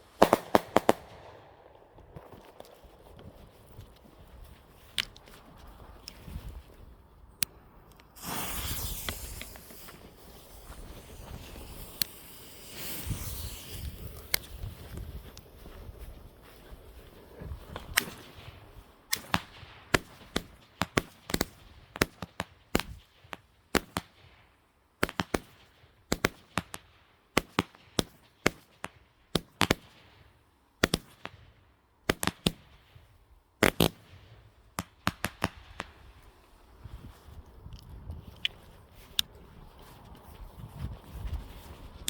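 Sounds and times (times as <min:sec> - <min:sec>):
fireworks banging: 0:00.0 - 0:01.4, 0:08.2 - 0:14.4.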